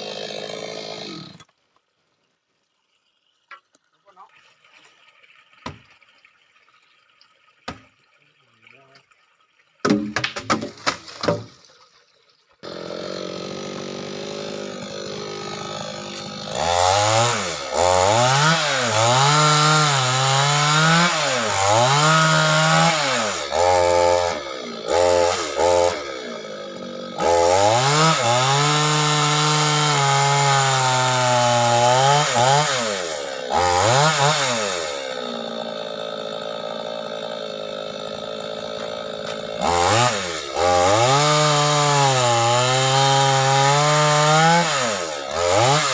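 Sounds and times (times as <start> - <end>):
chainsaw engine revving: 0.0 - 1.5, 12.6 - 45.9.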